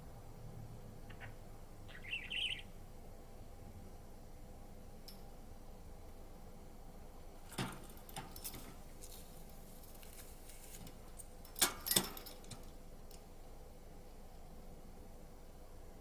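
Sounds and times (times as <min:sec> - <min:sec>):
birdcage clicks and rattles: 0:07.4 - 0:10.2, 0:10.8 - 0:13.3.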